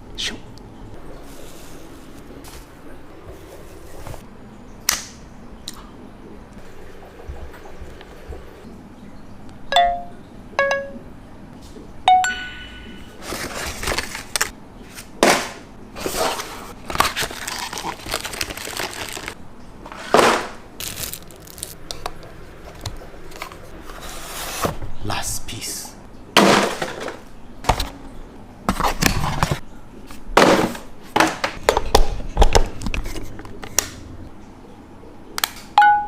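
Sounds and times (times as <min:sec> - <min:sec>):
packaging rustling and scraping: 0:13.2 - 0:15.1, 0:16.0 - 0:21.8.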